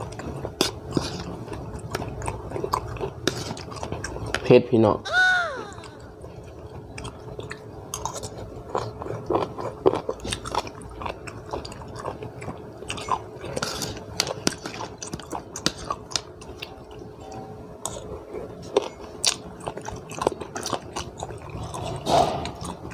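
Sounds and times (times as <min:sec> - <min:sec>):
person chewing and crunching: 0:00.0 - 0:04.5, 0:05.5 - 0:22.9.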